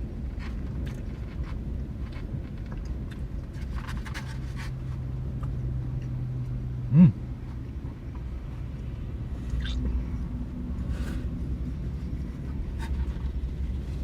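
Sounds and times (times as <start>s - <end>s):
low-pitched grunt: 6.8s - 7.3s
chewing mouth clicks: 9.5s - 9.9s.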